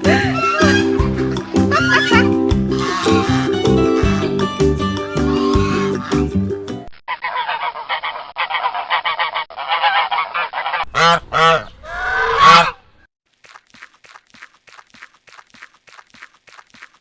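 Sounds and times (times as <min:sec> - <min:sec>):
geese honking: 0:00.1 - 0:06.4, 0:07.1 - 0:12.8.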